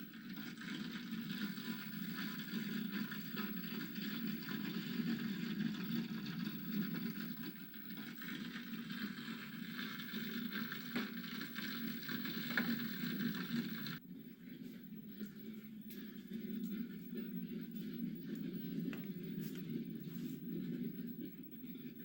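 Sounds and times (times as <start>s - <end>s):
fire crackling and hissing: 0.2s - 14.0s.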